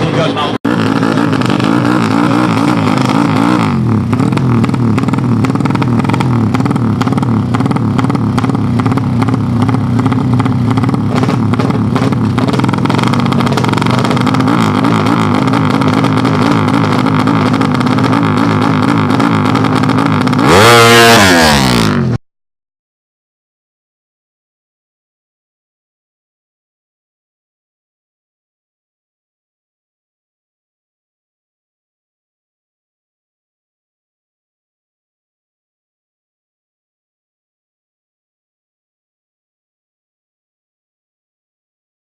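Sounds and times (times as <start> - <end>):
motorcycle engine revving: 0.0 - 22.2.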